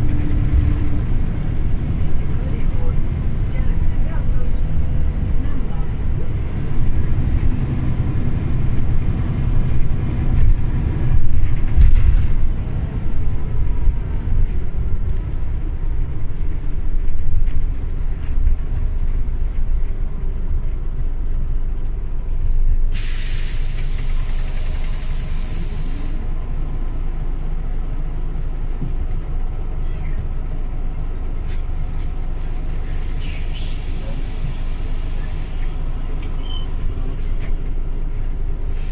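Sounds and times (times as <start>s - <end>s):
bus engine and road noise: 0.0s - 38.9s
air brakes hissing: 22.9s - 26.3s, 33.1s - 36.8s.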